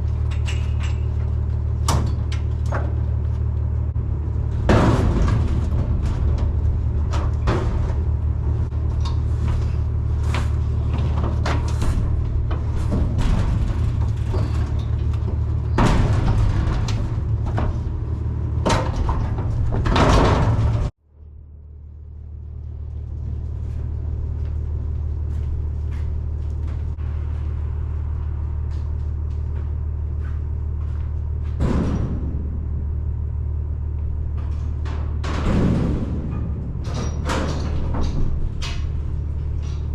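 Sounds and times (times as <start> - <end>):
truck body rattling: 0.0 - 20.9, 31.5 - 39.9
truck engine and road drone: 0.0 - 39.9.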